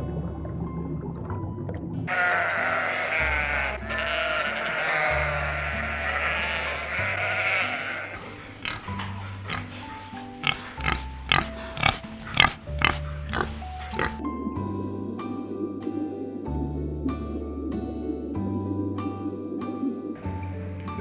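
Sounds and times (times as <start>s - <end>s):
background music: 0.0s - 21.0s
animal calls: 2.1s - 14.2s.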